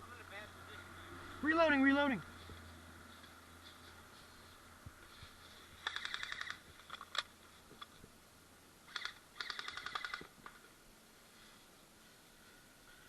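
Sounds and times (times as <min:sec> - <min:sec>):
airsoft gun firing: 0:05.8 - 0:06.6.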